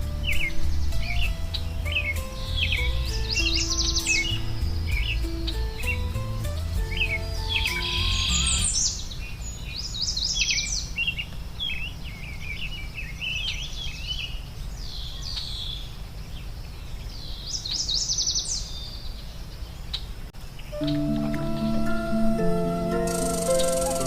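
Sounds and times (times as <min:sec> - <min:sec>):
low background rumble: 0:00.0 - 0:09.8
songbirds chirping and singing: 0:00.2 - 0:20.0, 0:20.6 - 0:24.0.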